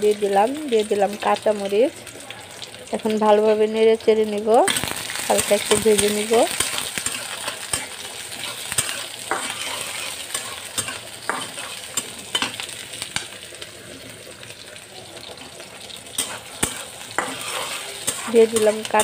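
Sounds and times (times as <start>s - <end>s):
onions sizzling in hot oil: 0.0s - 19.0s
metal spatula scraping a pan: 4.6s - 13.3s, 16.1s - 19.0s.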